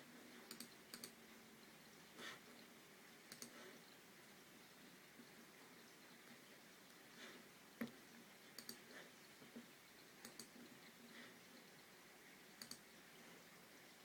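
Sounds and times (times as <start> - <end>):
faint mouse button clicks: 12.6 - 12.8.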